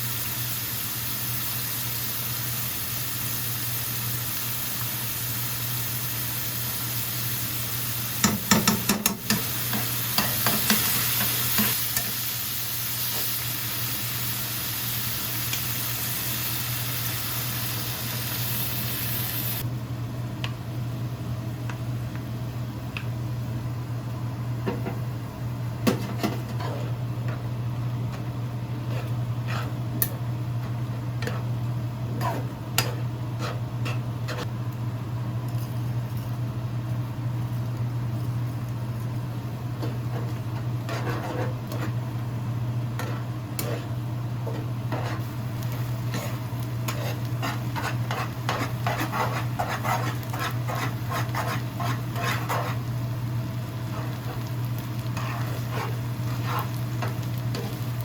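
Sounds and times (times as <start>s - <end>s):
knocks and taps on a pan: 8.2s - 9.4s
steady low hum: 19.6s - 58.0s
utensil scraping against a pan: 25.9s - 27.0s, 28.8s - 29.8s, 32.2s - 34.5s, 39.8s - 42.0s, 43.0s - 45.3s, 46.1s - 52.9s, 53.9s - 57.8s.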